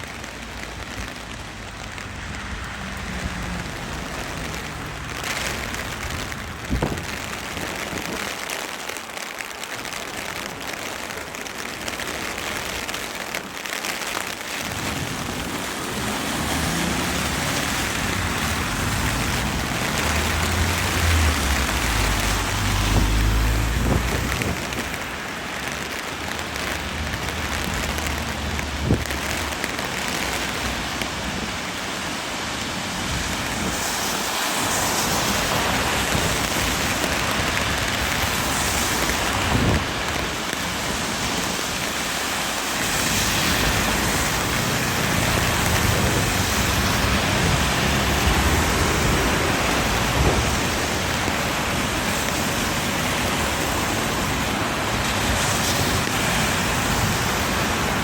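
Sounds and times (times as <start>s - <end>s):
heavy rain: 0.0s - 58.0s
vehicles swishing on wet road: 0.0s - 58.0s.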